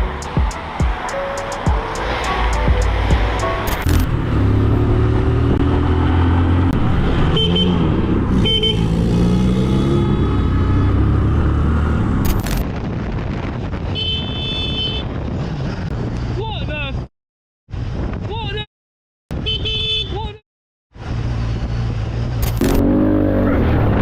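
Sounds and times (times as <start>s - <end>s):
car horn: 7.3s - 7.8s, 8.4s - 9.1s, 13.9s - 15.1s, 19.3s - 20.3s.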